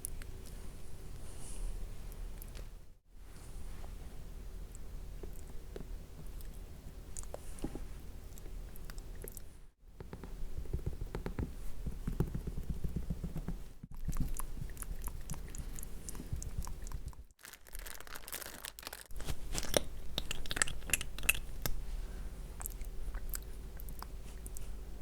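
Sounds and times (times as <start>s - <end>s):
wet mouth clicks and crackles: 13.9s - 17.3s, 19.5s - 21.8s, 22.6s - 24.7s.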